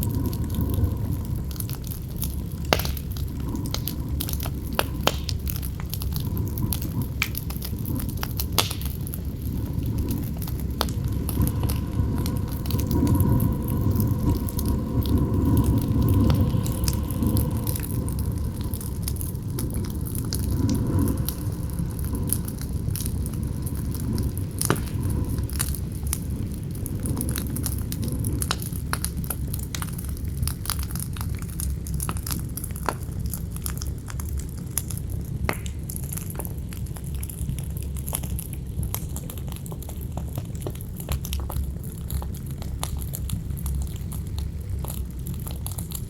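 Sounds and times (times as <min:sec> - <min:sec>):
whistling howl of wind: 0:00.0 - 0:35.6
campfire crackling and popping: 0:00.0 - 0:46.0
low rumble of wind: 0:00.0 - 0:46.0.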